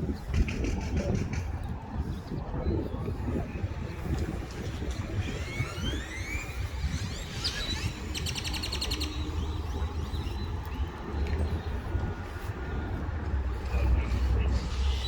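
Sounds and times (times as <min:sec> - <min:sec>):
small birds chirping: 0:05.2 - 0:12.5
steady low rumble: 0:06.4 - 0:15.0.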